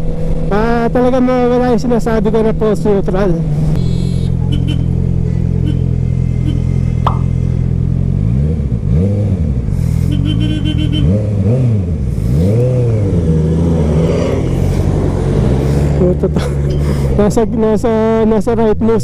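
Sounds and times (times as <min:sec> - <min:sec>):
motorcycle engine revving: 0:00.0 - 0:18.2.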